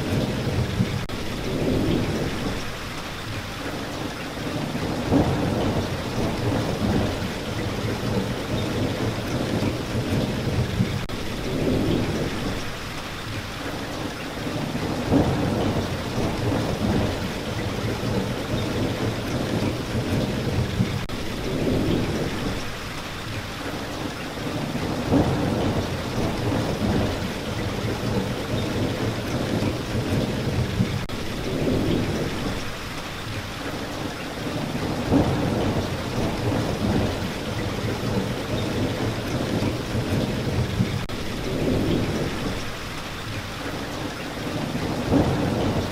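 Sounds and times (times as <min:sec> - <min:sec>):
steady rain: 0:00.0 - 0:45.9
thunder rolling: 0:04.5 - 0:12.7, 0:14.5 - 0:22.7, 0:24.5 - 0:32.7, 0:34.5 - 0:42.7, 0:44.5 - 0:45.9.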